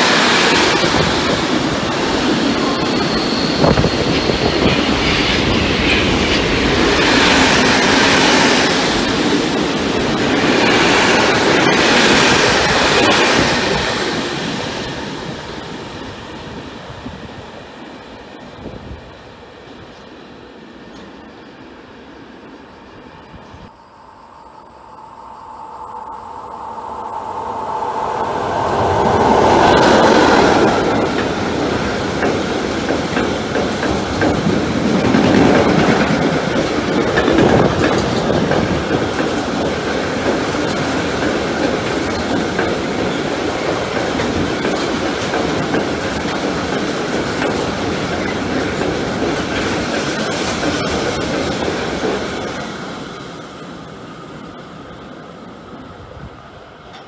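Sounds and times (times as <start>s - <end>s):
train wheels clattering over rail joints: 30.8s - 52.6s.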